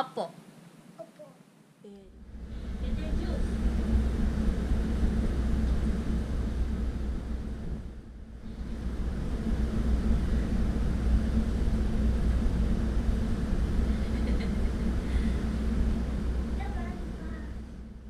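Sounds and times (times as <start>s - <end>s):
faint hum: 0.0s - 18.0s
low rumble: 1.9s - 18.0s.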